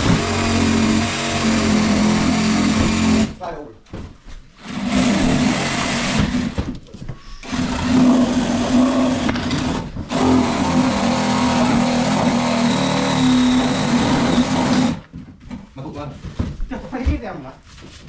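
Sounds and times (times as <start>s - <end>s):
power tool motor humming: 0.0s - 3.4s, 4.6s - 6.6s, 7.4s - 15.1s.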